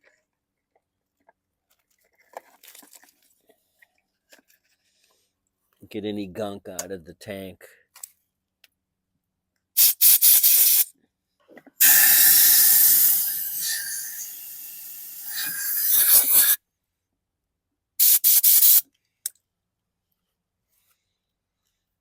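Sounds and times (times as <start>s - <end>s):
compressed air blow gun blasting: 9.8s - 10.8s, 11.8s - 16.6s.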